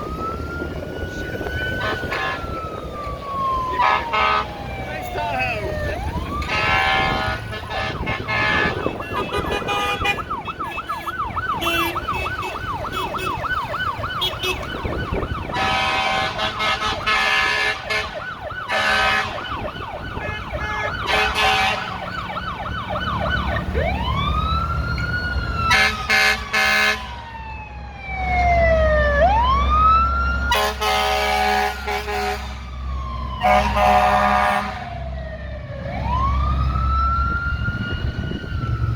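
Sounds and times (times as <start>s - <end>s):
fire truck siren: 0.0s - 38.9s
short horn blasts: 6.5s - 10.2s, 20.6s - 21.9s, 30.5s - 32.6s, 33.4s - 34.8s.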